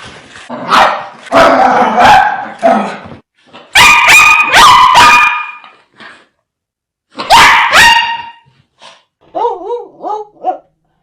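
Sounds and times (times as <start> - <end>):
dog barking fiercely: 0.6 - 2.6, 3.7 - 5.6, 7.2 - 8.4.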